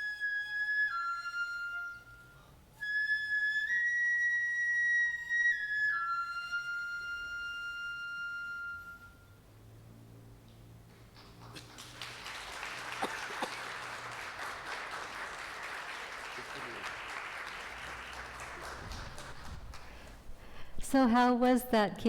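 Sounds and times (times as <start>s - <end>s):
flute playing long high notes: 0.0s - 9.4s.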